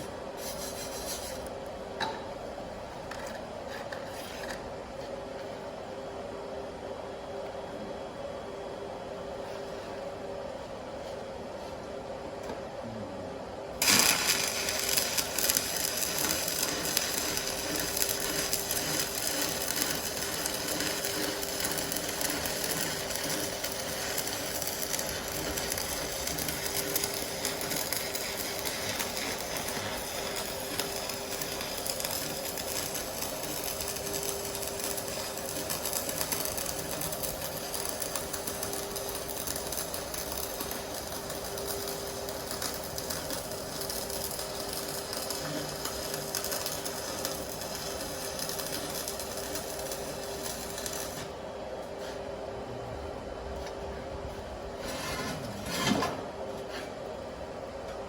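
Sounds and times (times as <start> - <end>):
welding arc hissing and buzzing: 0.0 - 1.6, 13.8 - 51.4.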